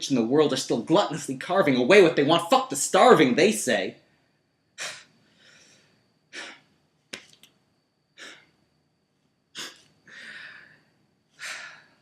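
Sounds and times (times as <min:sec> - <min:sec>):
man breathing: 0:04.8 - 0:06.7, 0:08.2 - 0:08.6, 0:09.6 - 0:12.0.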